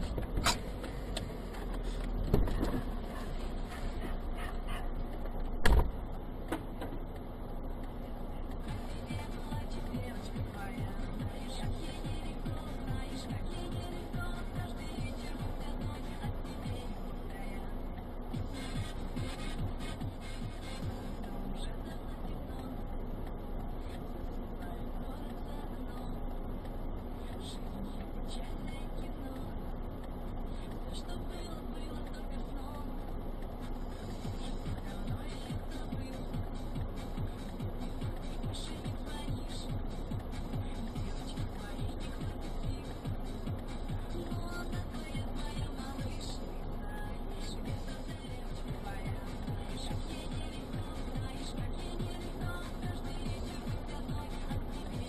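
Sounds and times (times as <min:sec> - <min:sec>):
car cabin low rumble: 0:00.0 - 0:55.0
heavy thump: 0:05.6 - 0:06.6.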